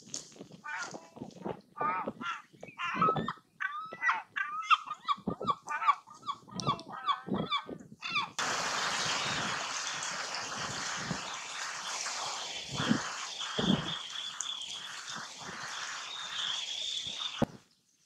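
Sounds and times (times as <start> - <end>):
birds calling: 1.8 - 17.6
steady rushing noise: 8.4 - 17.6.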